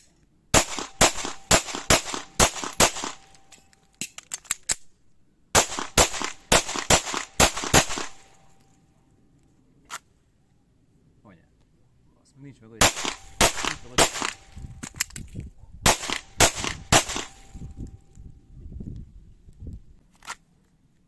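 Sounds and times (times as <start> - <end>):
rifle gunshots: 0.5 - 3.5, 5.6 - 8.4, 12.8 - 14.6, 15.8 - 17.6
faint gunshot cracks: 12.8 - 14.6, 15.8 - 17.6.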